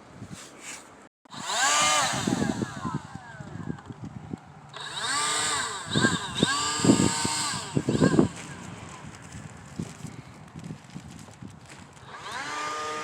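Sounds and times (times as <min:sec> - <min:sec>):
power tool motor whirring: 0:01.3 - 0:10.2, 0:11.8 - 0:13.0.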